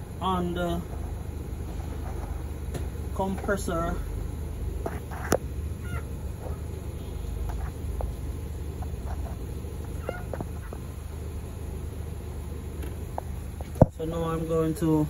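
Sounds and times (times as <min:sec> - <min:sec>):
steady low hum: 0:00.0 - 0:15.0
fowl-like bird calls: 0:04.8 - 0:07.8, 0:09.9 - 0:10.9.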